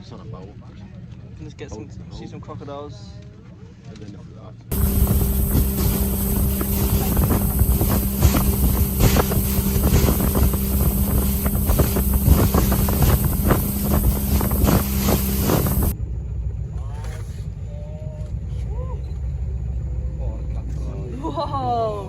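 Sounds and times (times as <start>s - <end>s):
boat motor running: 4.7s - 16.0s
wind buffeting microphone: 4.7s - 16.0s.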